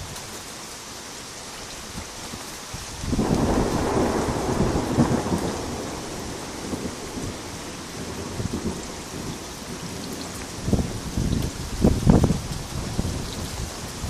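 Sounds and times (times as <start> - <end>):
rain falling: 0.0 - 14.0
thunder rumbling: 2.9 - 14.0.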